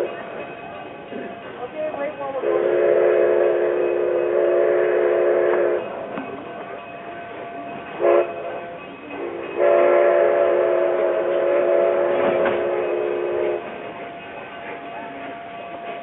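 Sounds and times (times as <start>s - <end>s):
train running: 0.0s - 16.0s
steam locomotive whistle: 2.4s - 6.0s, 8.0s - 8.6s, 9.2s - 13.6s.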